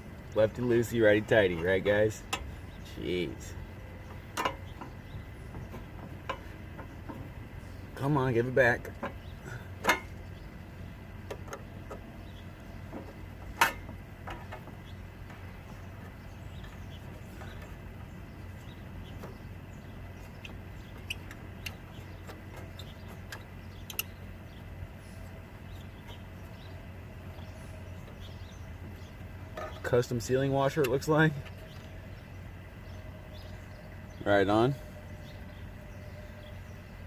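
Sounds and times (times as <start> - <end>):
low hum: 0.0 - 37.0
small metal clicks and taps: 4.1 - 5.0, 20.4 - 24.2.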